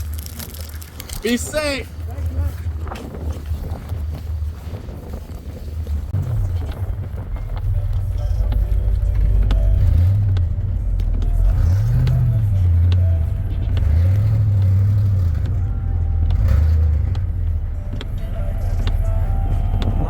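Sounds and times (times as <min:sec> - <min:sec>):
car engine revving: 0:04.0 - 0:20.0.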